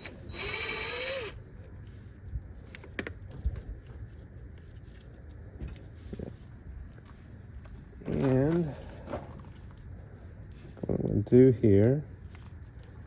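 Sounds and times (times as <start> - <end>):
small electric tool motor whine: 0.0 - 1.4.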